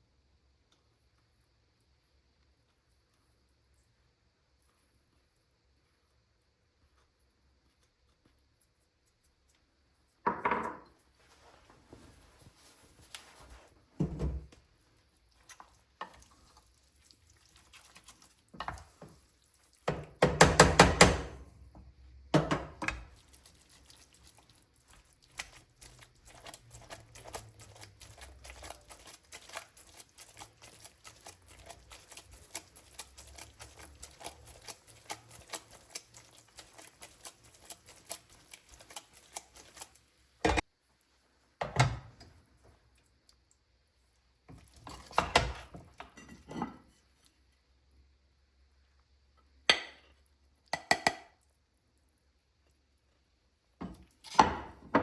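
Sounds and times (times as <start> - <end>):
spoon stirring risotto in pan: 2.4 - 55.0
utensil knocking against pan: 19.9 - 21.4.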